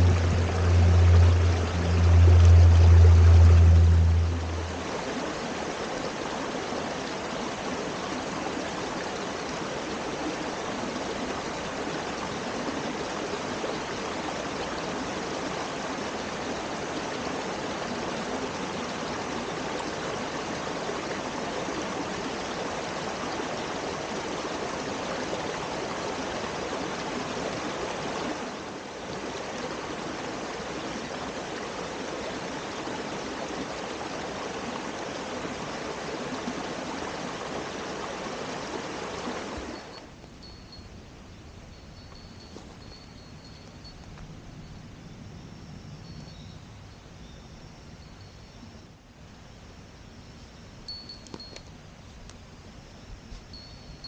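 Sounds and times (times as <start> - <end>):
loud low hum: 0.0 - 5.0
stream flowing: 0.0 - 44.0.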